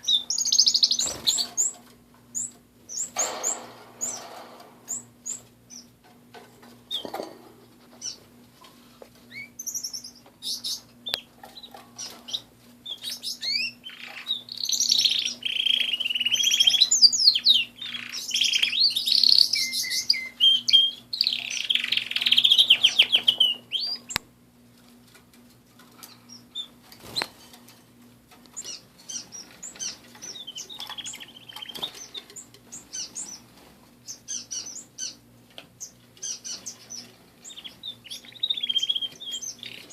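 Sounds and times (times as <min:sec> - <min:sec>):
bird trilling song: 0:00.0 - 0:01.8, 0:04.9 - 0:05.9, 0:09.3 - 0:24.2, 0:28.6 - 0:33.4, 0:34.0 - 0:35.2, 0:35.8 - 0:39.9
canaries chirping: 0:00.0 - 0:06.0, 0:06.6 - 0:08.3, 0:09.2 - 0:24.2, 0:26.0 - 0:27.4, 0:28.3 - 0:39.9.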